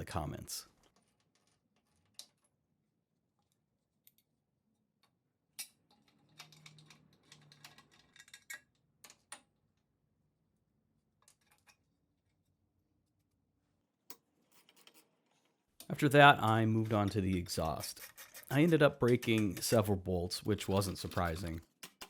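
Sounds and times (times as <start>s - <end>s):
faint clicks and taps: 15.8s - 22.0s.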